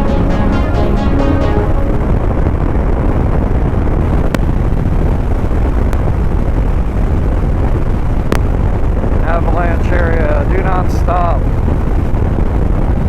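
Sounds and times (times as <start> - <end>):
background music: 0.0 - 4.0
wind rumble on microphone: 1.2 - 13.0.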